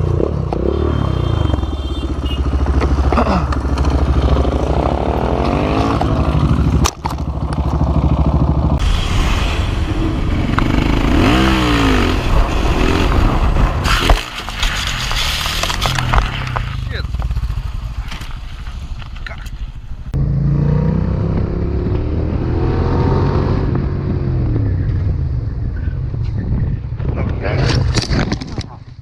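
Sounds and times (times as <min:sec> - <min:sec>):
motorcycle engines revving: 0:00.0 - 0:08.8, 0:10.0 - 0:14.6, 0:20.1 - 0:27.6
wind and road noise: 0:00.0 - 0:29.0.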